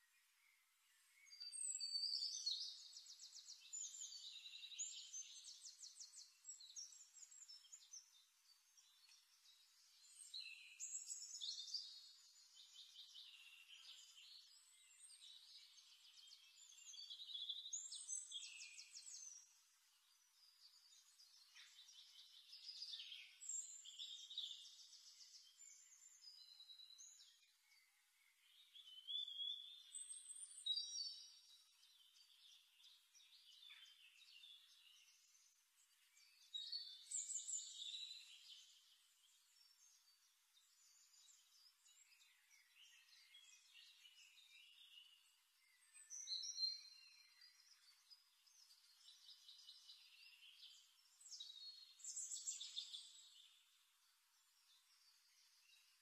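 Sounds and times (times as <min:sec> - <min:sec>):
songbird singing trills: 0:00.0 - 0:56.0.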